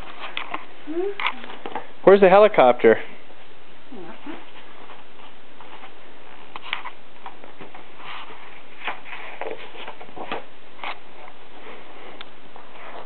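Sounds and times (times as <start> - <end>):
book pages rustling: 4.8 - 11.4.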